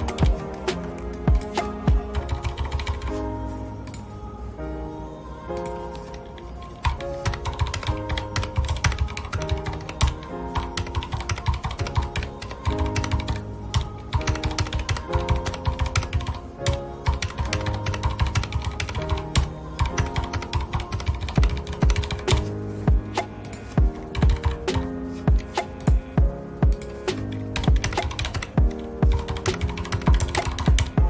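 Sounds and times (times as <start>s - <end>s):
soft background music: 0.0s - 31.0s
mechanical keyboard typing: 10.8s - 13.4s, 14.2s - 16.4s, 17.0s - 22.4s, 27.6s - 30.9s.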